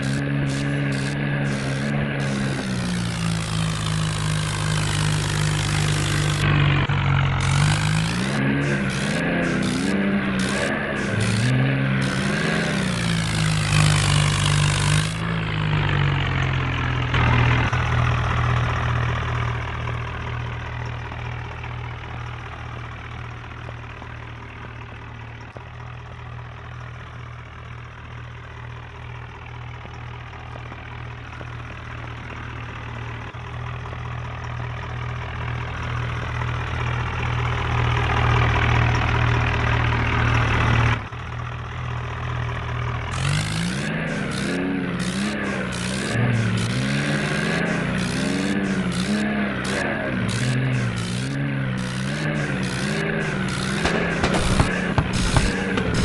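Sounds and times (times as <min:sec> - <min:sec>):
tractor engine humming: 0:00.0 - 0:56.0.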